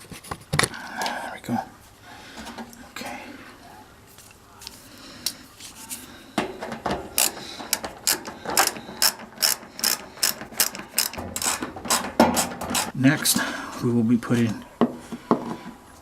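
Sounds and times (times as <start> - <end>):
socket ratchet clicking: 7.2 - 12.9.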